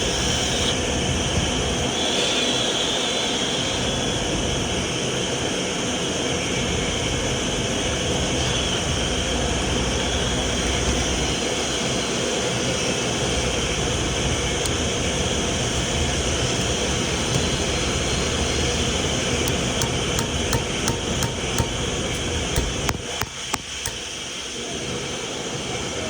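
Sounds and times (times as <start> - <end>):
vacuum cleaner motor running: 0.0 - 0.8, 9.7 - 24.3.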